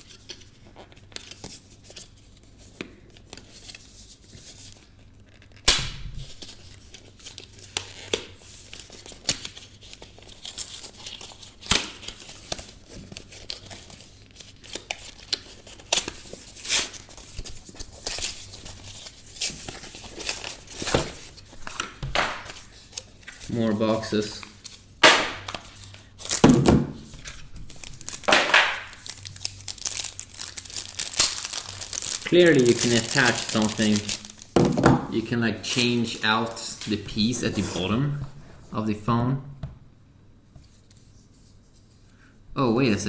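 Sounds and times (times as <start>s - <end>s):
plastic wrap crinkling: 4.5s - 38.4s
cardboard tearing: 6.2s - 34.7s.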